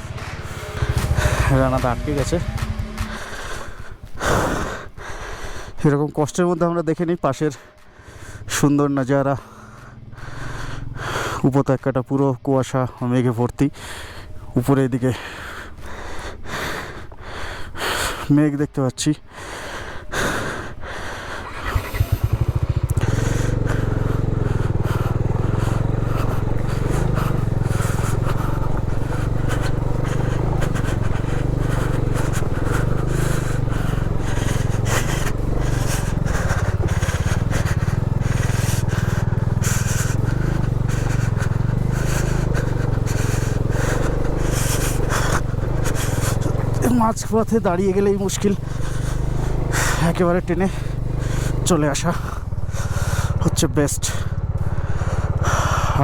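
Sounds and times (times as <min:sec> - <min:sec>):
motorcycle engine under load: 0:00.0 - 0:05.0, 0:07.2 - 0:11.5, 0:20.6 - 0:56.0.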